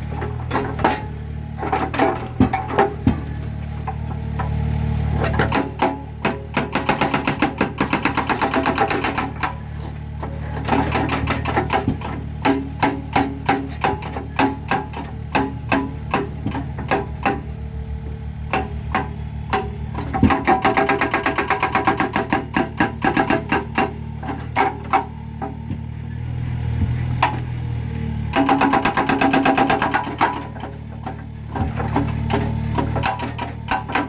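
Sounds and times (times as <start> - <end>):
excavator engine humming: 0.0 - 34.0
hydraulic breaker hammering concrete: 5.2 - 17.7, 18.4 - 26.0, 28.3 - 34.0.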